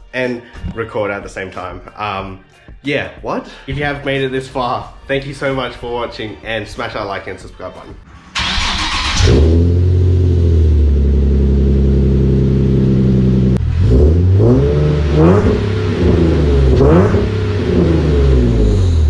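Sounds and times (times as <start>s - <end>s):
car engine idling and revving: 8.4s - 19.0s.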